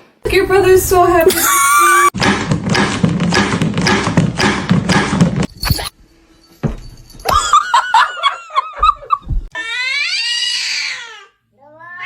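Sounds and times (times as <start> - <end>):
cat meowing: 11.6 - 12.0.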